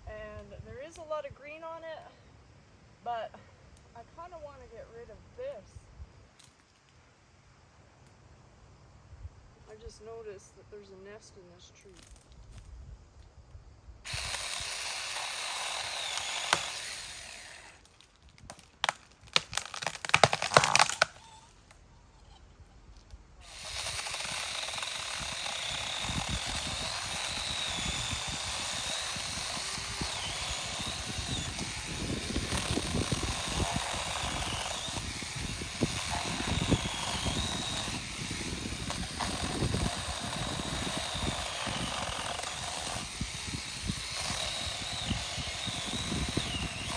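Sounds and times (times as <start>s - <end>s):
electric chainsaw cutting wood: 14.1s - 17.9s, 18.8s - 21.6s, 23.4s - 46.9s.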